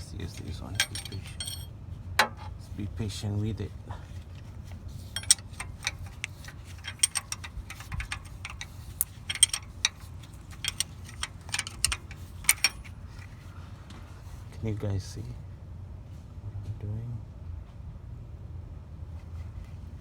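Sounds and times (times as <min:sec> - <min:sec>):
ratcheting wrench clicking: 0:00.0 - 0:01.7, 0:05.2 - 0:13.3.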